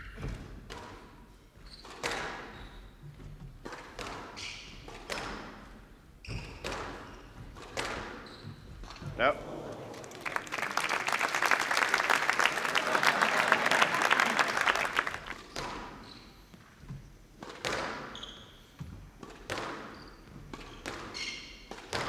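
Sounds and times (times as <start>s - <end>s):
audience applauding: 9.2s - 15.5s
squash ball hits: 20.8s - 22.0s.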